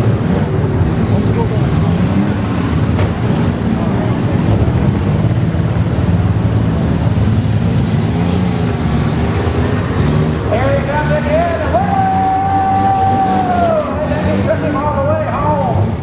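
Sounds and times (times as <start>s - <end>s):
engines revving: 0.0s - 16.0s.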